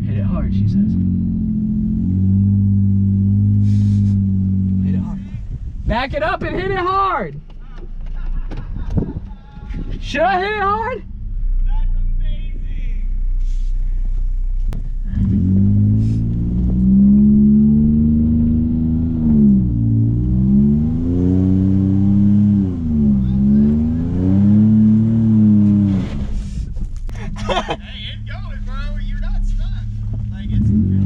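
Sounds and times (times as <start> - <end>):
car engine revving hard: 0.4 - 5.2, 15.0 - 26.6, 30.3 - 31.0.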